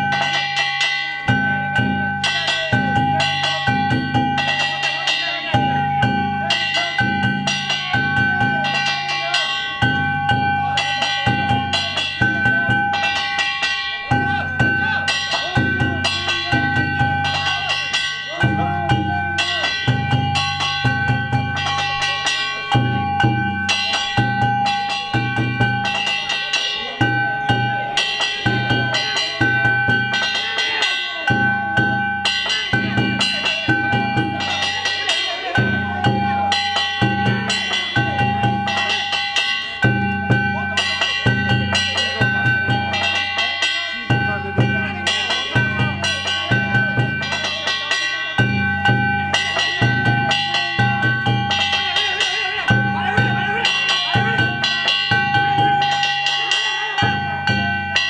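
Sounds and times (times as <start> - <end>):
metal gongs ringing: 0.0 - 58.0
taiko drum beating: 0.0 - 58.0.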